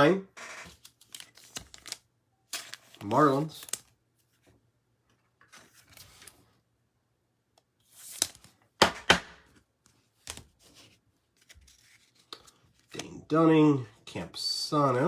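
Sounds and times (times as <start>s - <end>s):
cards rustling: 0.7s - 4.5s, 7.8s - 9.2s, 9.9s - 13.1s.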